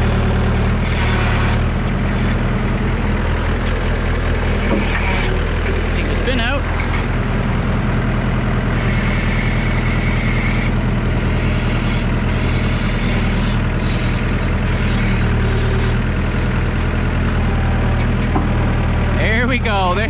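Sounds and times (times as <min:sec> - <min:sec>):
diesel tractor engine under load: 0:00.0 - 0:20.0.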